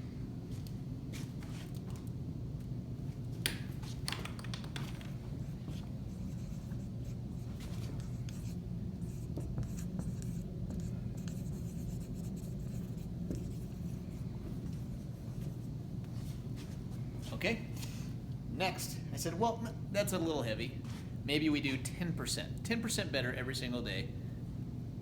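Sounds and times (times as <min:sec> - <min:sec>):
low room hum: 0:00.0 - 0:25.0
pen scratching while writing: 0:05.7 - 0:13.9.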